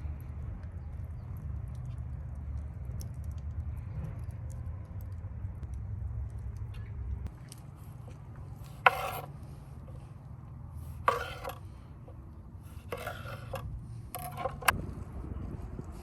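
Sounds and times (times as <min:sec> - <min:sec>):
metal utensil scraping cookware: 0:08.6 - 0:10.0, 0:10.8 - 0:11.7, 0:12.7 - 0:14.8.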